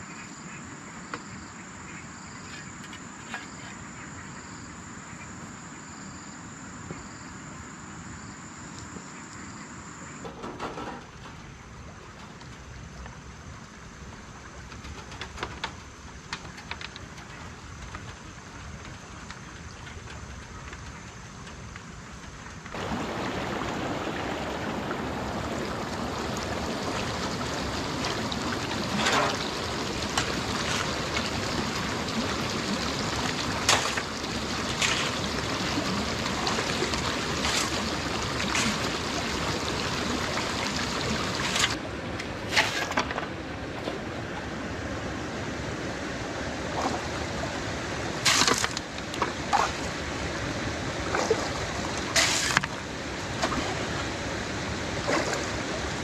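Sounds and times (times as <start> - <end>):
running water: 22.5 - 56.0.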